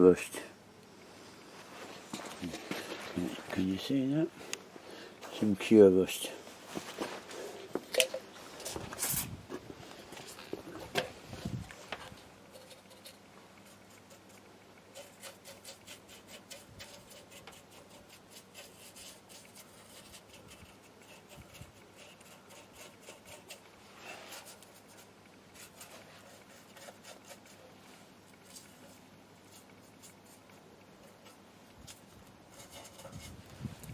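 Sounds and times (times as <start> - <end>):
scratchy brush strokes on metal: 11.4 - 33.9.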